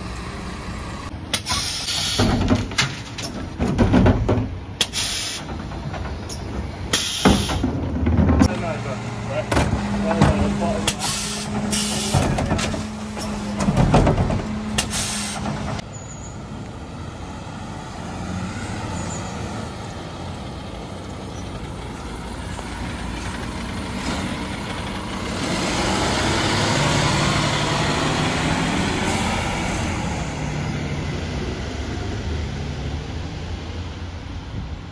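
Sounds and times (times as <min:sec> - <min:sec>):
clattering knocks: 0:02.2 - 0:08.5, 0:11.5 - 0:14.8.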